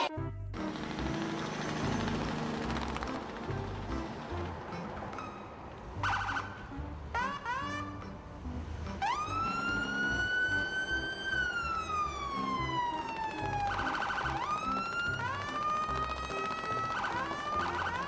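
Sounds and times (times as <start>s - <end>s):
police siren wailing: 6.0s - 8.1s, 8.9s - 18.0s.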